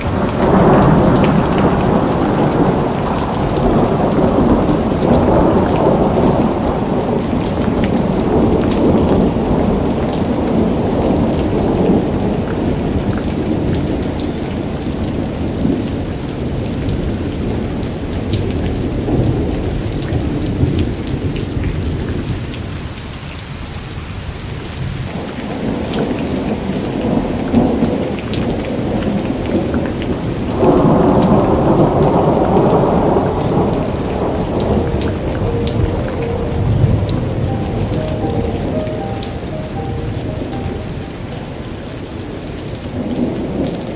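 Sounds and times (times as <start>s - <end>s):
heavy rain falling: 0.0s - 43.9s
thunder rumbling: 30.6s - 39.1s.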